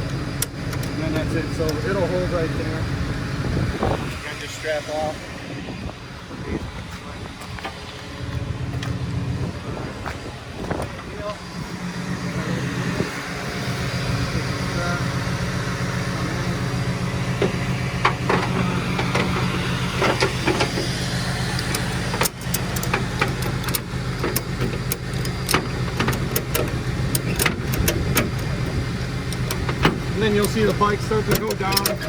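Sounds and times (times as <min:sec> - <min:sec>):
truck engine running: 0:00.0 - 0:32.0
sharp clicks and knocks: 0:17.4 - 0:32.0.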